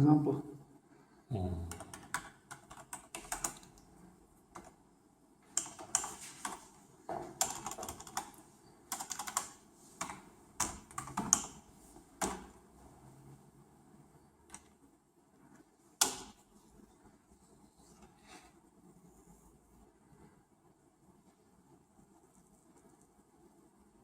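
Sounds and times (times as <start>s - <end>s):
computer keyboard typing: 1.7s - 3.8s, 4.5s - 4.8s, 5.5s - 6.7s, 7.3s - 12.6s.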